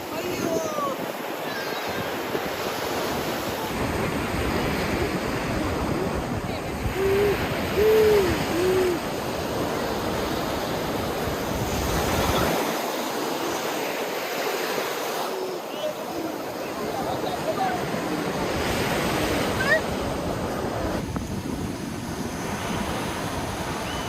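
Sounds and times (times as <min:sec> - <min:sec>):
wind buffeting microphone: 0:00.0 - 0:12.8, 0:17.0 - 0:24.0
ocean surf: 0:00.0 - 0:24.0
short hoot-like tones: 0:07.0 - 0:09.0.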